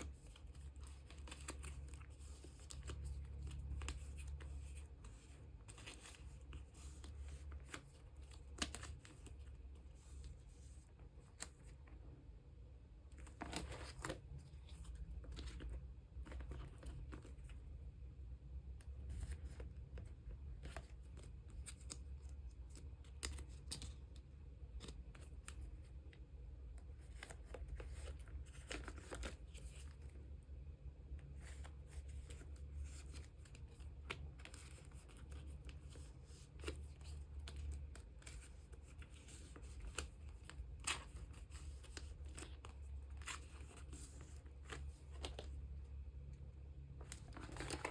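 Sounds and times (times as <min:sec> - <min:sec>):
small clicks and scrapes: 0:00.0 - 0:12.1, 0:13.0 - 0:17.8, 0:18.7 - 0:30.4, 0:31.1 - 0:47.9
low steady hum: 0:00.0 - 0:47.9
plastic sleeves crinkling: 0:13.0 - 0:17.9, 0:26.8 - 0:30.4, 0:31.1 - 0:46.2, 0:46.9 - 0:47.9.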